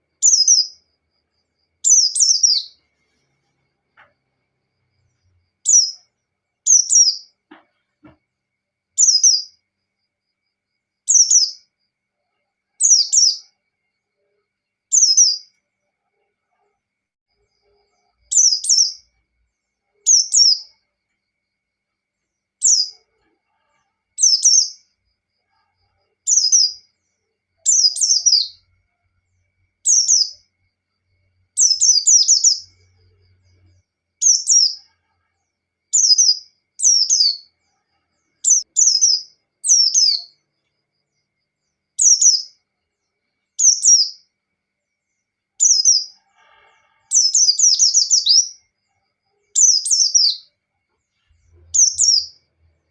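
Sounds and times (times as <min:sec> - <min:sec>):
bird singing high warbled phrases: 0:00.0 - 0:00.8, 0:01.8 - 0:02.8, 0:05.6 - 0:06.1, 0:06.7 - 0:07.3, 0:09.0 - 0:09.6, 0:11.1 - 0:11.7, 0:12.8 - 0:13.6, 0:14.9 - 0:15.6, 0:18.2 - 0:19.1, 0:20.0 - 0:20.7, 0:24.2 - 0:24.9, 0:26.3 - 0:26.8, 0:27.6 - 0:28.6, 0:29.8 - 0:30.4, 0:31.6 - 0:32.9, 0:34.2 - 0:34.9, 0:36.0 - 0:37.5, 0:38.4 - 0:40.4, 0:42.0 - 0:42.6, 0:43.6 - 0:44.3, 0:47.2 - 0:48.6, 0:49.6 - 0:50.5, 0:51.5 - 0:52.5.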